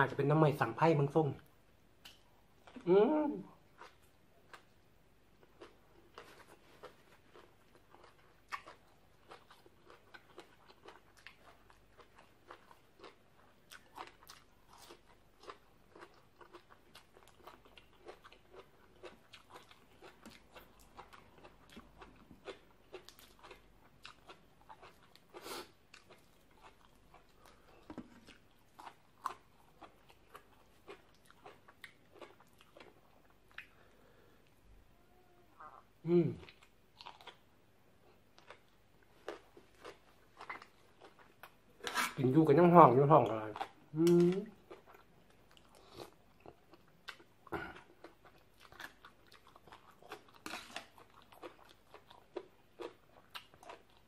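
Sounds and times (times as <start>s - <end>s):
chewing crisp vegetables: 2.0s - 34.6s, 35.6s - 54.0s.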